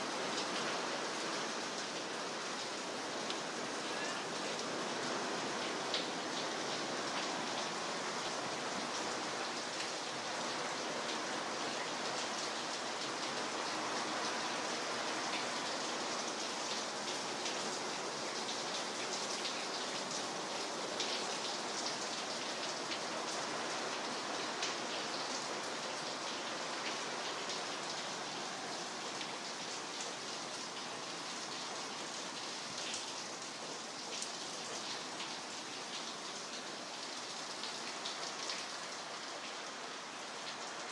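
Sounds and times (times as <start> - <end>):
very heavy rain: 0.0 - 40.9.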